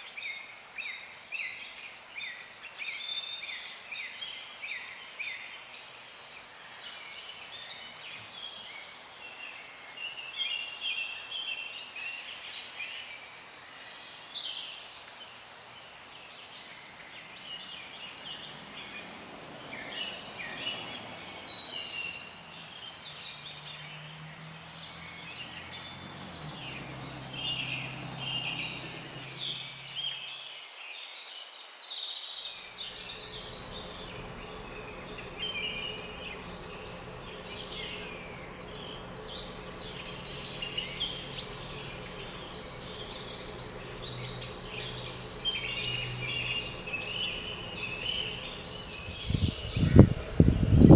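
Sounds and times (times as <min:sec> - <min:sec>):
small birds chirping: 0:00.0 - 0:50.9
faint low hum: 0:32.6 - 0:50.9.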